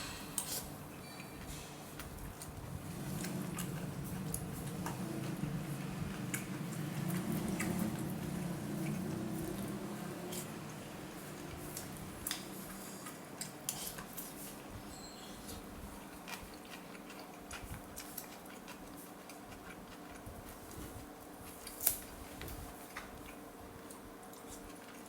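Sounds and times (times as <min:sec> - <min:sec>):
utensils clinking against a bowl: 0:00.0 - 0:02.1
steady low hum: 0:00.0 - 0:18.4.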